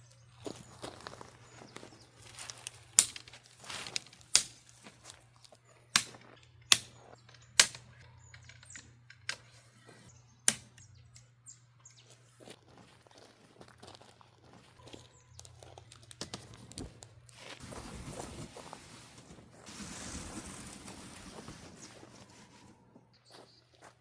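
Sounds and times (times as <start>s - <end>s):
sharp knocks and clicks: 6.0s - 9.5s, 10.5s - 11.3s.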